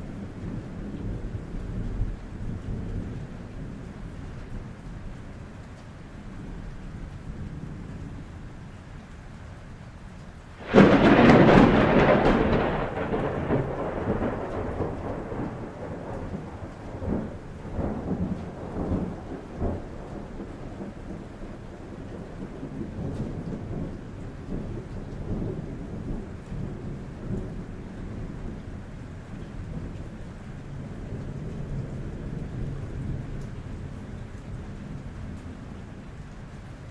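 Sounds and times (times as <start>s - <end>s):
rain on a roof: 0.0s - 36.9s
thunder cracking and rumbling: 10.6s - 36.2s.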